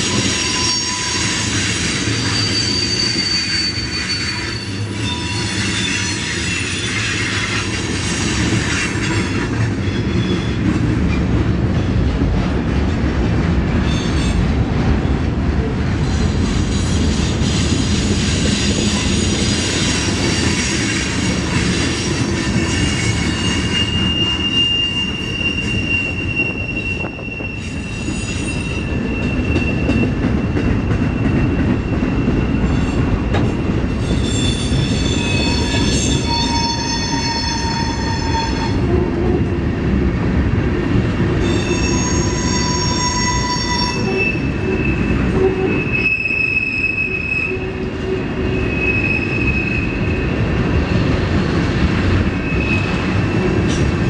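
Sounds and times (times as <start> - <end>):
shrill wheel squeal: 0.0 - 8.0, 9.8 - 10.6, 18.5 - 39.0, 41.4 - 50.4, 52.3 - 54.0
freight cars rumbling on rails: 0.0 - 54.0.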